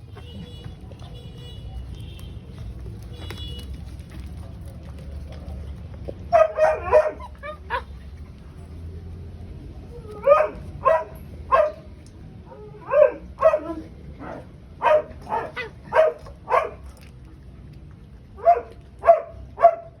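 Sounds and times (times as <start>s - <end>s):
dog barking: 6.3s - 7.3s, 10.2s - 11.9s, 12.8s - 16.8s, 18.4s - 20.0s.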